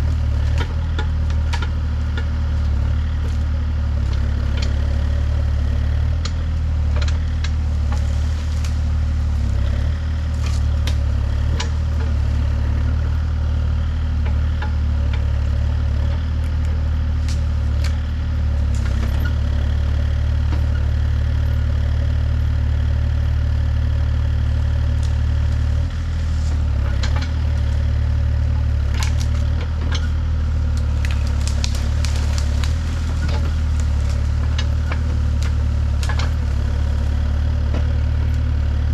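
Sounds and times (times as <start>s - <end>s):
heavy engine running: 0.0s - 38.9s
sharp clicks and cracks: 30.7s - 36.6s.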